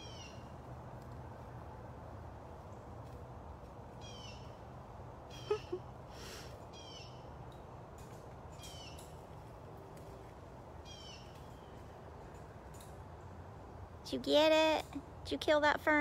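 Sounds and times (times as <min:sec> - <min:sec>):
bird calling: 0:00.0 - 0:00.5, 0:04.0 - 0:04.6, 0:05.3 - 0:07.4, 0:10.8 - 0:11.8.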